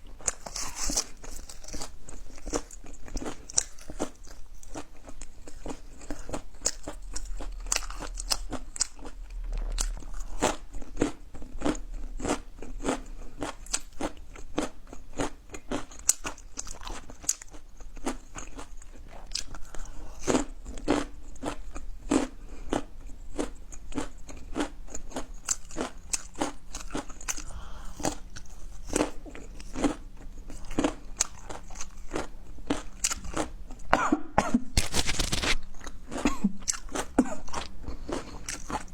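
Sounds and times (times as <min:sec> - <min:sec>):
chewing crunchy food: 0:00.0 - 0:38.9.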